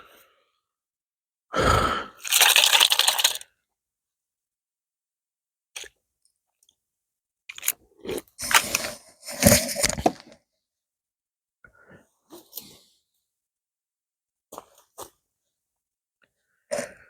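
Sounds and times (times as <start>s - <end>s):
person chewing crunchy food: 2.2s - 3.4s.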